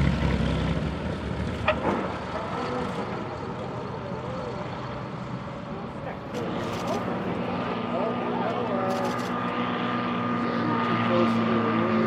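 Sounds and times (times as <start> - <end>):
propeller airplane engine drone: 0.0 - 12.0
steady engine rumble: 0.0 - 12.0.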